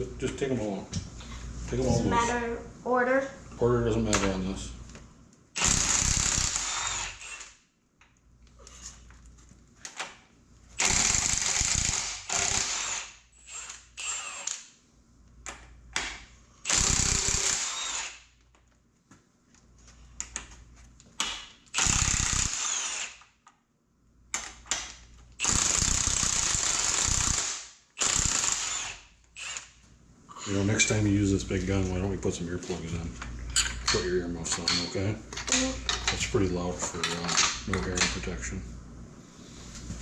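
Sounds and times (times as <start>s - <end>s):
impact wrench hammering: 10.8s - 14.6s.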